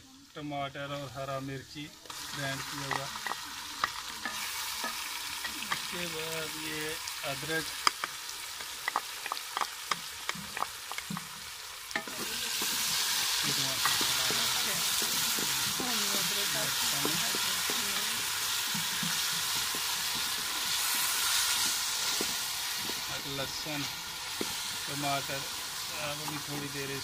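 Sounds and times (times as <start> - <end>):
vegetables sizzling in hot oil: 0.0 - 27.0
crackles and pops of frying: 0.1 - 27.0
wooden spatula scraping a pot: 11.9 - 23.1.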